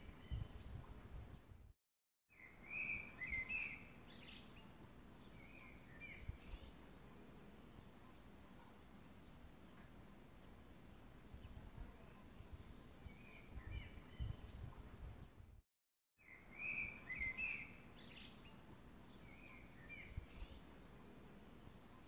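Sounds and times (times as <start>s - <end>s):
faint bird chirps: 0.0s - 1.5s, 2.3s - 15.2s, 16.2s - 22.0s
low background noise: 2.4s - 15.6s, 16.2s - 22.0s.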